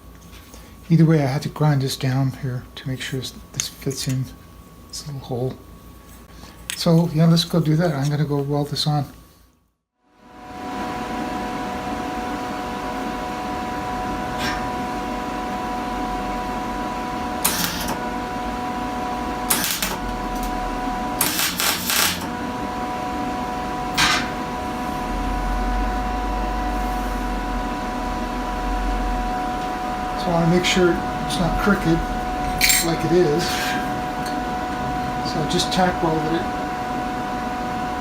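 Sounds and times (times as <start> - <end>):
steady electrical hum: 0.0 - 9.6, 10.2 - 38.0
welding arc crackling: 17.3 - 22.4.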